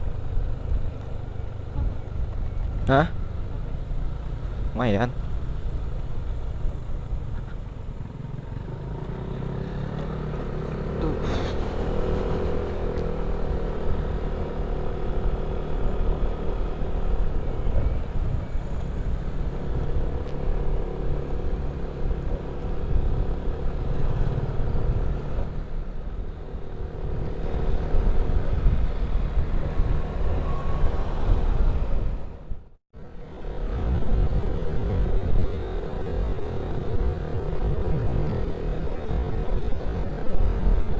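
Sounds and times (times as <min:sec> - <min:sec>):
motorcycle engine running: 0:00.0 - 0:31.0, 0:31.6 - 0:40.9.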